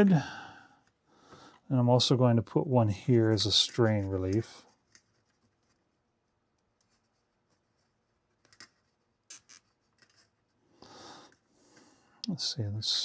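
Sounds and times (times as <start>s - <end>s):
cable tie clicks and rustles: 3.3s - 5.9s, 8.3s - 10.4s.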